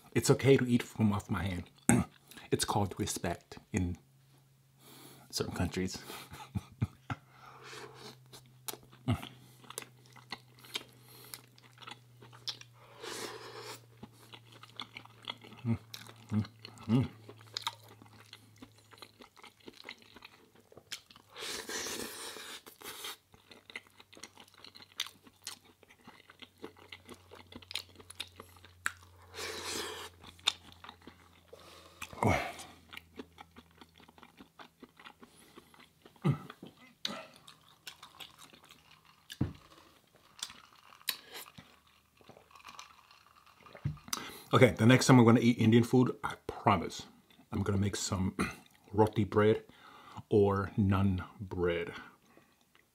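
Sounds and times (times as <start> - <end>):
person chewing and crunching: 7.8 - 44.5.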